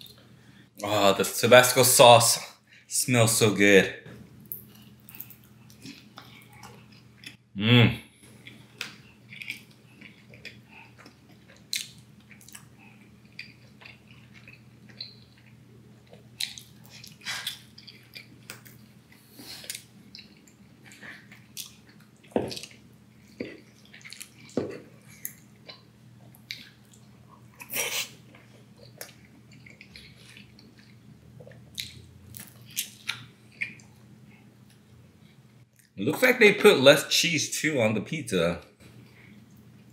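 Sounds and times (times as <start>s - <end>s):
faint steady hum: 0.0s - 39.9s
close-up chewing: 8.4s - 34.8s.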